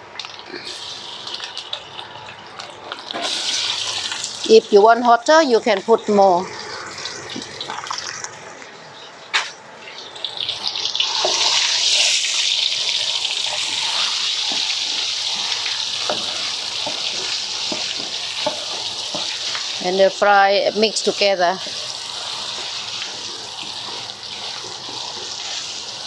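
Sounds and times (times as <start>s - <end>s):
curry paste sizzling in oil: 0.6s - 4.8s, 10.0s - 26.0s
ladle stirring in pot: 11.0s - 20.0s, 20.8s - 26.0s.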